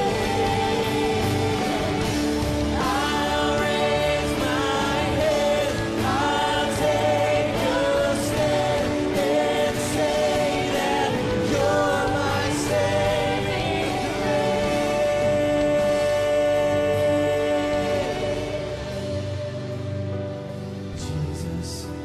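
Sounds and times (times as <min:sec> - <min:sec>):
sustained instrumental accompaniment: 0:00.0 - 0:22.0
voices singing worship song: 0:00.0 - 0:22.0.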